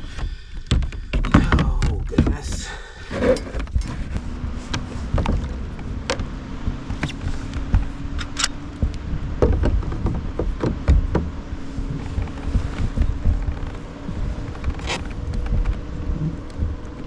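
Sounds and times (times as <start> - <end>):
gear knocking against plastic kayak: 0.0 - 17.0
low rumble: 1.4 - 17.0.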